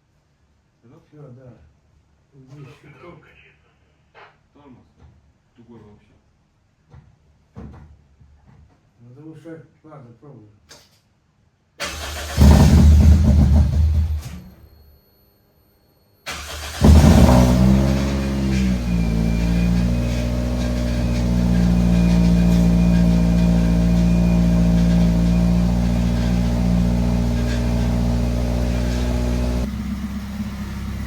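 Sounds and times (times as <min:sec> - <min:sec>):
car engine starting and running: 0:11.8 - 0:14.5, 0:16.3 - 0:31.0.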